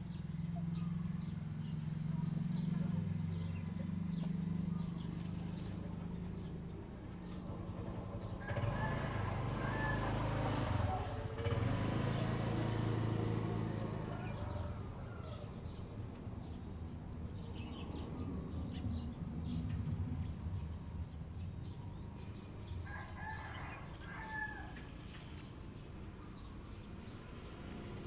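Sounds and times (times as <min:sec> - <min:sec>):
rooster crowing: 0:08.4 - 0:15.7, 0:22.8 - 0:25.1.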